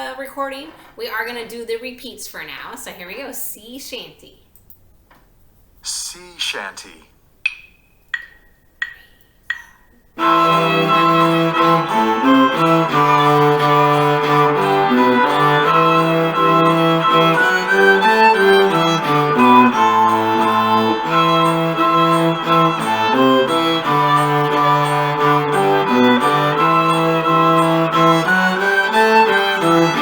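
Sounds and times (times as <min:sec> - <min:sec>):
bowed cello melody: 0:10.2 - 0:30.0
string accompaniment track: 0:10.2 - 0:30.0.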